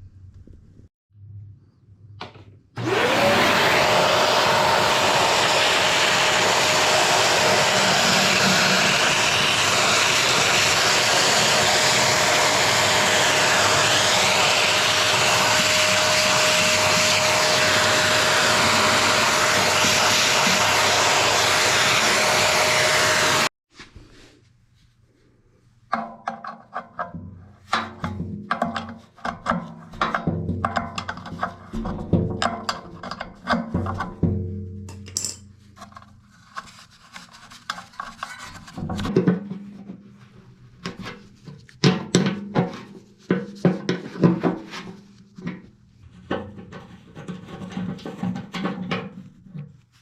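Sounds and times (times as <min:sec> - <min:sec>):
vacuum or blower whining: 0:02.8 - 0:23.5
faint handling sounds: 0:23.7 - 0:25.9, 0:35.0 - 0:41.8.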